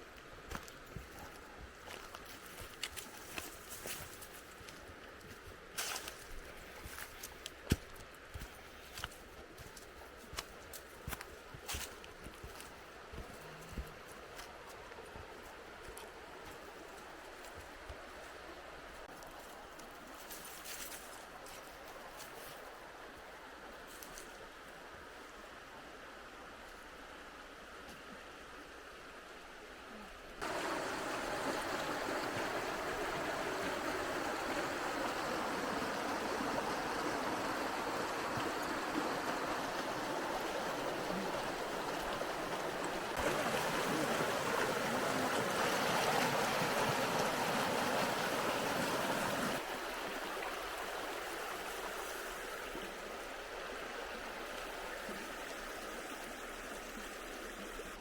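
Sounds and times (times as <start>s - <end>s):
river water rushing: 30.4s - 58.0s.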